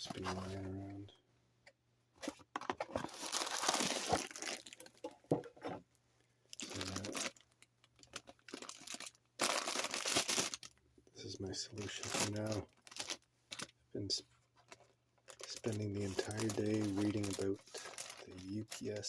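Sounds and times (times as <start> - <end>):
packaging crinkling: 2.6 - 5.1, 6.5 - 10.8, 11.7 - 13.7, 14.6 - 19.0
packaging tearing: 3.0 - 4.9, 6.6 - 7.4, 8.0 - 10.7, 11.8 - 13.7, 15.3 - 18.8.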